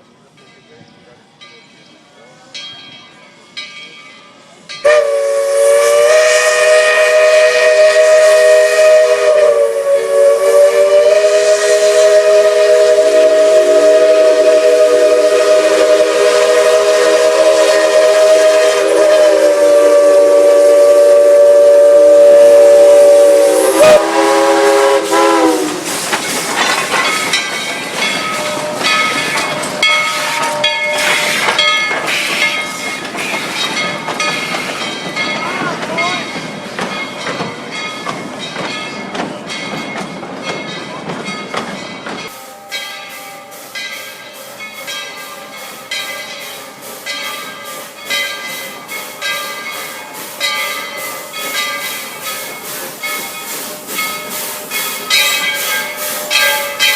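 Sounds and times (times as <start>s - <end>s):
train clattering on rails: 0.0s - 56.9s
steam locomotive whistle: 4.8s - 26.1s, 28.0s - 34.9s, 45.3s - 56.9s.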